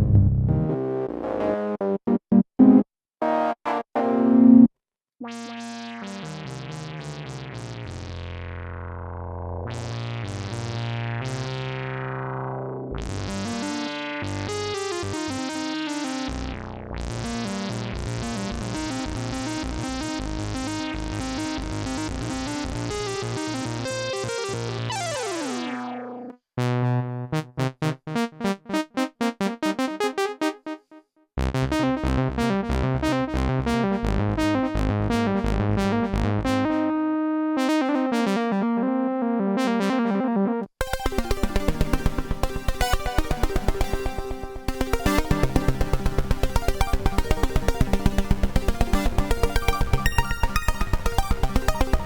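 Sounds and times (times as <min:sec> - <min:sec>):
synthesizer patch: 0:22.8 - 0:26.3, 0:40.8 - 0:52.0
pulsing synthesizer patch: 0:40.8 - 0:52.0
staccato synthesizer notes: 0:40.8 - 0:52.0.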